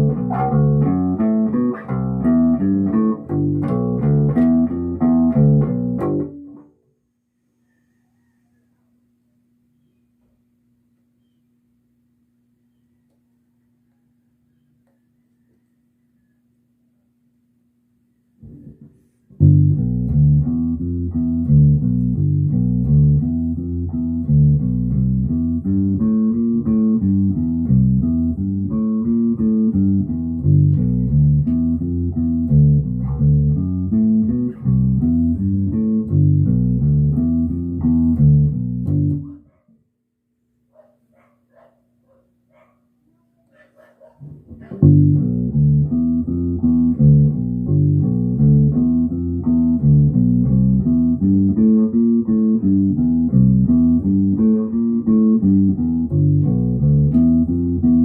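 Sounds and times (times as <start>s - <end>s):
plucked electric bass guitar: 0.0s - 6.7s, 18.4s - 39.4s, 44.3s - 58.0s.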